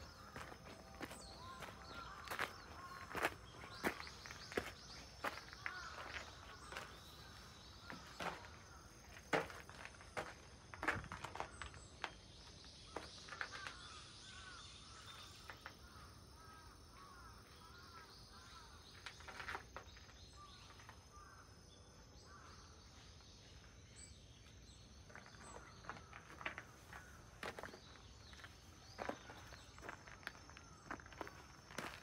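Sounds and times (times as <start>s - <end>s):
faint bird chirps: 0.0s - 9.2s
footsteps on gravel: 0.0s - 13.9s, 25.0s - 32.0s.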